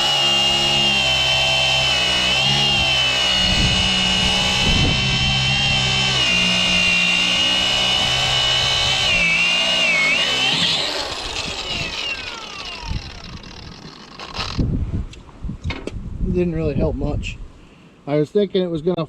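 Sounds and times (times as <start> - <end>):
firewood processor engine whine: 0.0 - 14.6.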